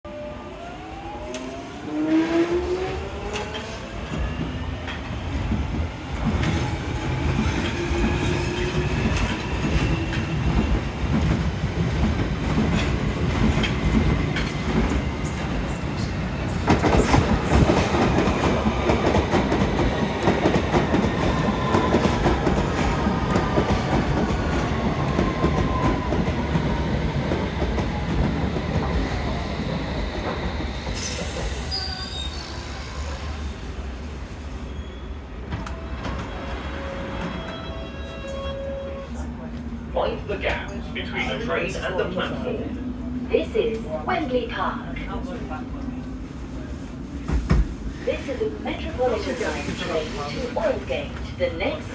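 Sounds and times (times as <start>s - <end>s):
train rumble: 1.0s - 34.5s.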